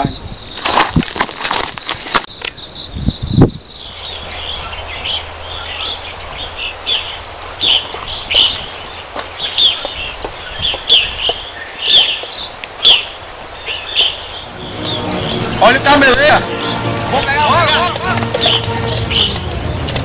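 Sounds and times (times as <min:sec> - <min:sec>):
small birds chirping: 0:01.6 - 0:20.0.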